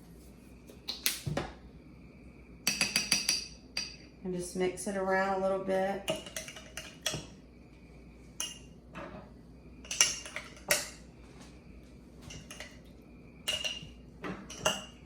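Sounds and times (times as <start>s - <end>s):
spoon clinking against glass jar: 13.5s - 15.0s.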